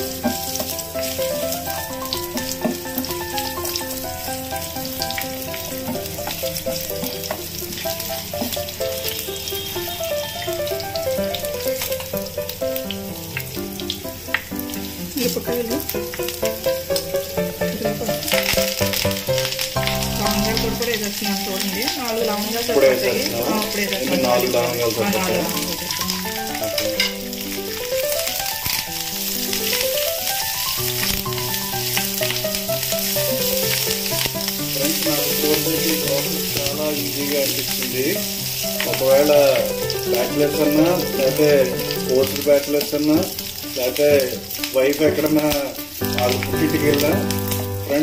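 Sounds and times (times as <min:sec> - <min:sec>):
spatula stirring in pan: 0:00.0 - 0:12.3
background melody: 0:00.0 - 0:48.0
spices sizzling in hot oil: 0:00.0 - 0:48.0.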